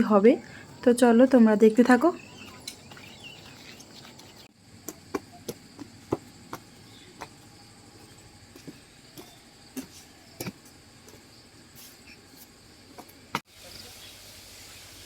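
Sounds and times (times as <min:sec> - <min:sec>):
crickets chirring: 0:00.0 - 0:14.1.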